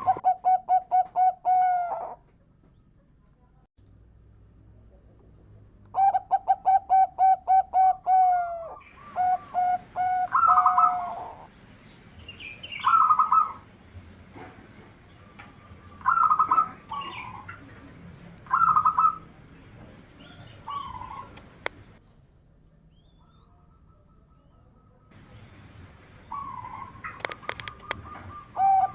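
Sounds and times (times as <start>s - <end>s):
dove cooing: 0.0s - 2.2s, 6.0s - 11.5s, 12.7s - 13.7s, 15.2s - 17.8s, 18.4s - 19.4s, 20.1s - 22.0s, 26.2s - 28.9s.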